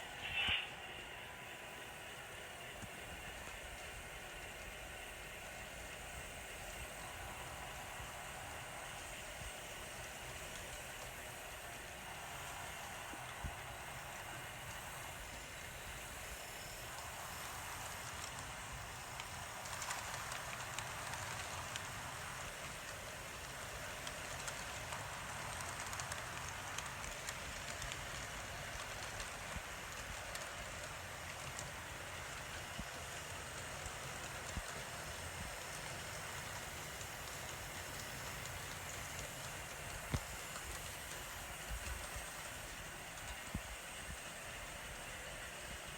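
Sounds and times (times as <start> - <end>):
model train wheels and motor whirring: 0.0 - 45.9
small clicks of track: 17.8 - 45.4.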